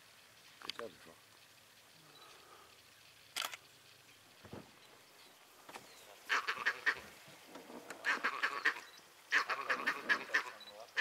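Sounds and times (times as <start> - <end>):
bird cackling call: 6.3 - 7.1, 8.0 - 11.0.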